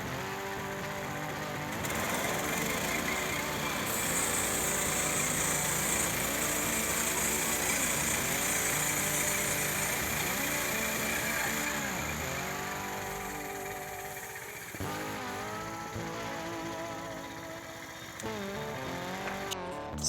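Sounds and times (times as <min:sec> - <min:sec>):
small gas engine under load: 0:00.0 - 0:20.0
saw blade hissing through log: 0:02.7 - 0:14.7.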